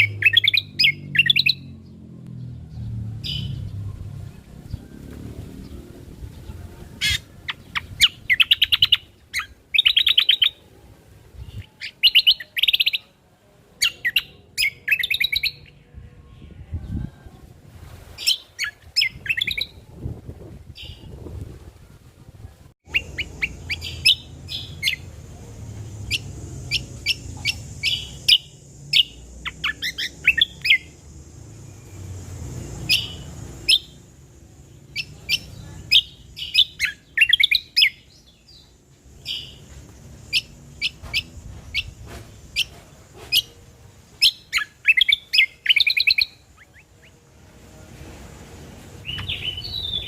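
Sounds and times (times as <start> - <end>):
bird chirps and trills: 0.0 - 10.7, 11.4 - 13.2, 13.8 - 17.0, 18.2 - 19.9, 22.8 - 25.2, 25.8 - 47.2
low rumble: 0.6 - 8.3.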